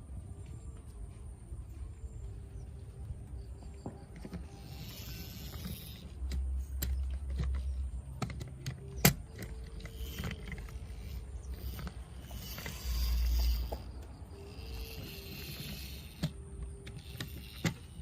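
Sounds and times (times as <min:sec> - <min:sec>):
toy trucks clicking and knocking: 0:03.8 - 0:18.0.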